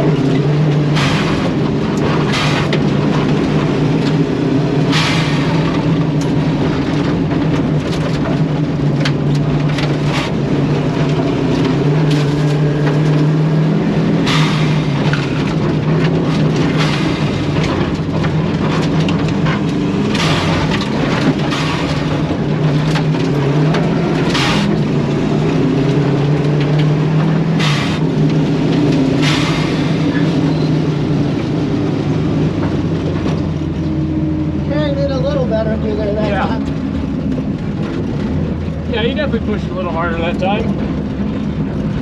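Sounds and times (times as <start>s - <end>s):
gravel rattling against car: 0.0s - 42.0s
rally car engine revving: 0.0s - 42.0s.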